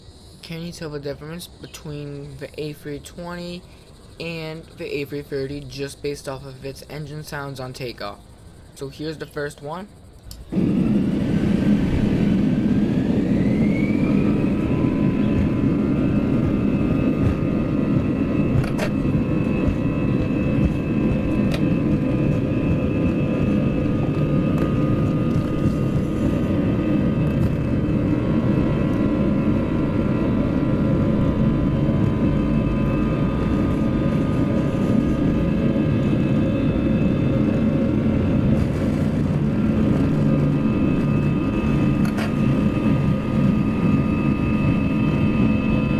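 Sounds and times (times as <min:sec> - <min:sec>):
jet engines whining: 0:00.0 - 0:45.9
heavy low rumble: 0:10.4 - 0:45.9.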